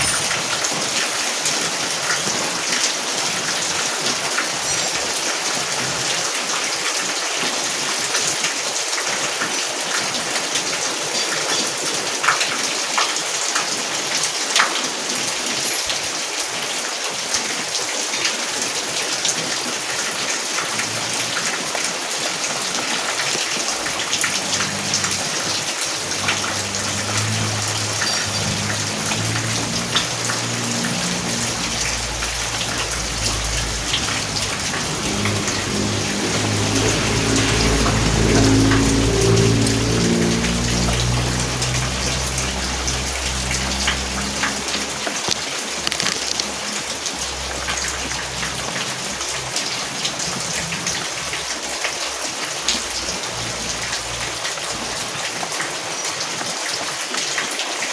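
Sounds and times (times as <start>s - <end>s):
heavy rain falling: 0.0s - 57.9s
low rumble: 24.0s - 45.4s.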